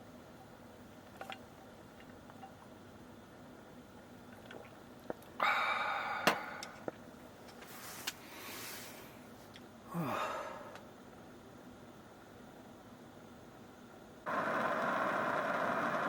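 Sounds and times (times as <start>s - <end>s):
person sipping a drink: 4.4s - 6.9s
breathy exhale: 5.4s - 6.8s, 8.2s - 9.2s, 9.9s - 10.8s
short falling sigh: 5.4s - 6.8s, 9.9s - 10.8s.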